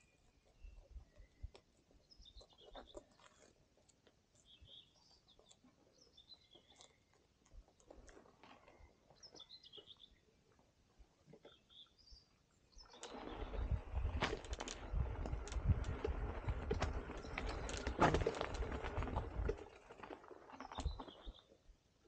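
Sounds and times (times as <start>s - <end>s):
small birds chirping: 0.0s - 21.7s
soft clicks and rustles: 12.8s - 21.6s.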